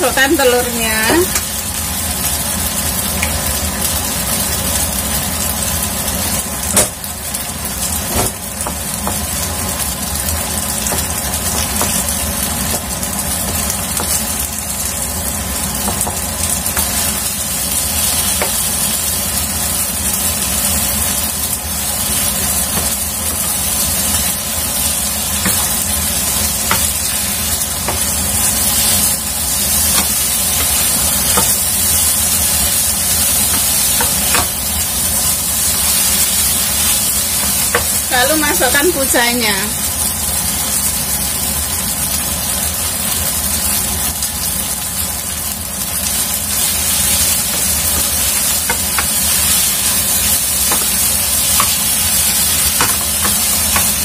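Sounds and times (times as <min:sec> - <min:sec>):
egg and noodles sizzling: 0:00.0 - 0:54.0.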